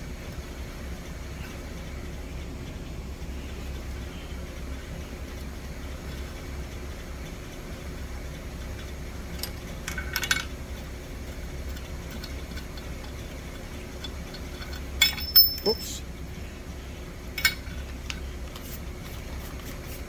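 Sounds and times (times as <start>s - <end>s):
light metallic clinks: 11.7s - 16.0s, 17.4s - 18.2s.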